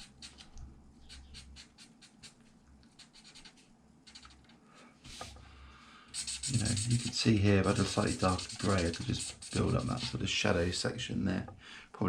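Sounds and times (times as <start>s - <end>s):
marker scratching on paper: 0.0s - 4.5s, 5.1s - 5.4s, 6.1s - 10.2s.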